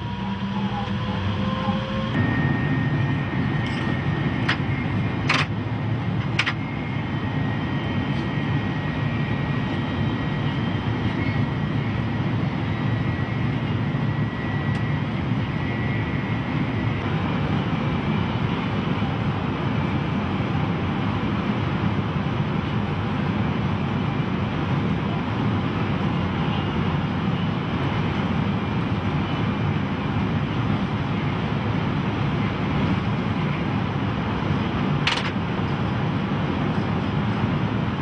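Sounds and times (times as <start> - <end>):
thin high whine: 0.0 - 5.2
train cab rumble and air rush: 0.0 - 38.0.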